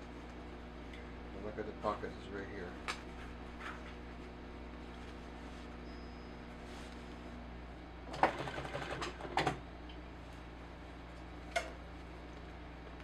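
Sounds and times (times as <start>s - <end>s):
sewing machine stitching: 8.1s - 9.6s.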